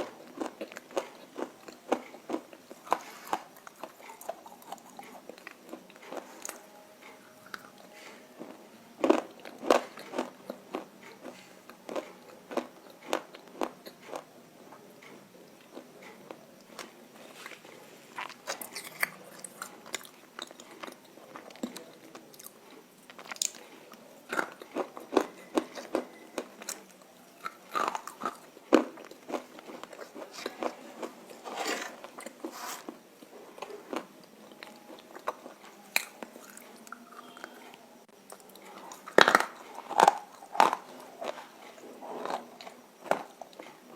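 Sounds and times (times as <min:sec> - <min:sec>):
chewing crunches: 0:00.0 - 0:06.6, 0:15.6 - 0:37.7, 0:38.3 - 0:43.8.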